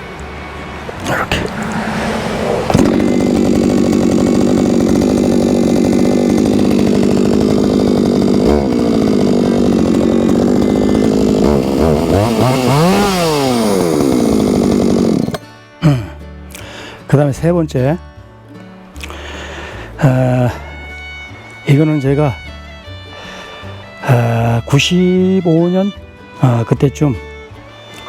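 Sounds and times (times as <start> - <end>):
chainsaw idling: 0.6 - 16.0
chainsaw pull-start: 0.9 - 15.5.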